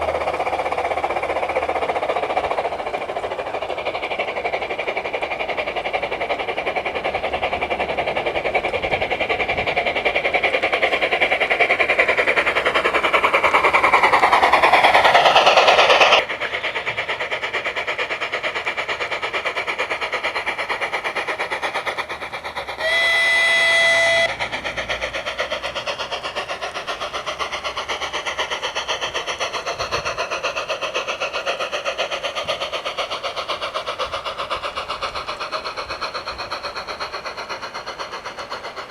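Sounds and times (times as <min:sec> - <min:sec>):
model steam locomotive chuffing: 0:00.0 - 0:38.9
rushing steam: 0:00.0 - 0:38.9
steam whistle blast: 0:22.8 - 0:24.5.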